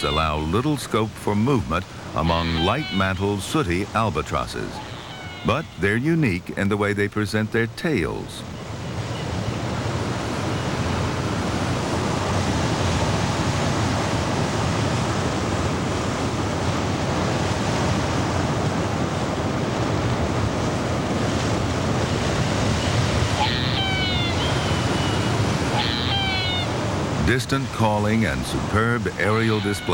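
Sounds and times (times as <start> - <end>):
bird call with falling notes: 0.0 - 0.9, 2.2 - 6.7, 22.8 - 29.9
steady wind: 0.0 - 29.9
surf: 0.0 - 29.9.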